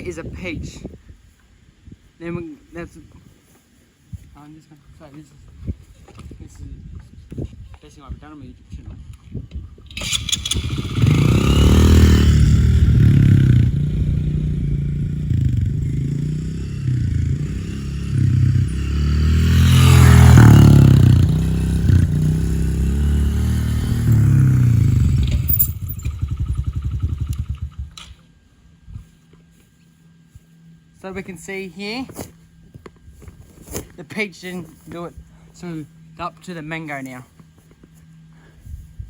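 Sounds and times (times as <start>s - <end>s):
motorcycle engine revving: 9.9s - 28.2s.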